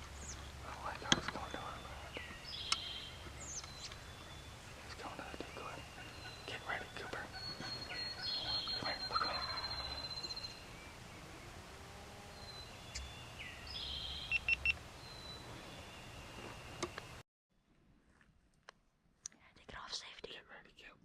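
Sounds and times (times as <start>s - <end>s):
high songbird calls: 0.0s - 11.6s, 12.2s - 17.2s
quick bird chirps: 0.2s - 10.8s
fluttering bird trill: 1.4s - 11.6s.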